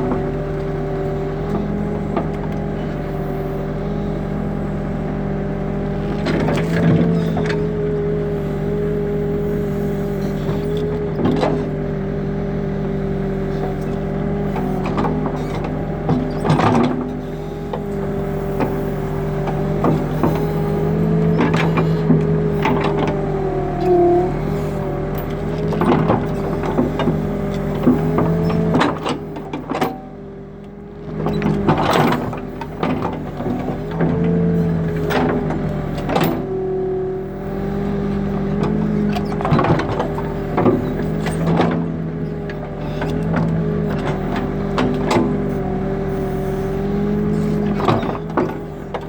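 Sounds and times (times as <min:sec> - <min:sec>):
diesel engine running: 0:00.0 - 0:49.0
digging arm and bucket clanks: 0:13.5 - 0:30.2, 0:31.2 - 0:36.6, 0:38.1 - 0:49.0.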